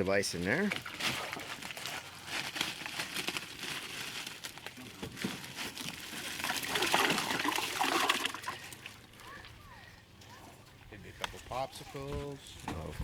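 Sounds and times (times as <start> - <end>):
plastic bags crinkling: 0.7 - 9.4.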